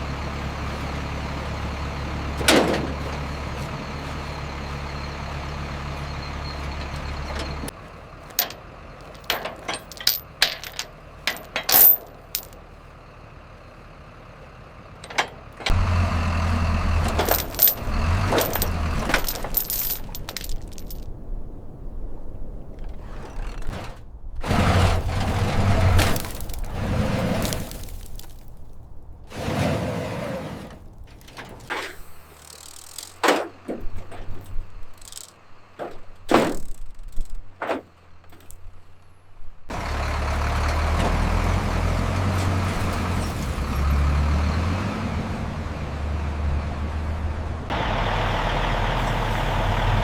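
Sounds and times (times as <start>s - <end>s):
low engine rumble: 0.0s - 50.0s
knocks and clinks: 8.4s - 12.6s, 17.0s - 21.0s.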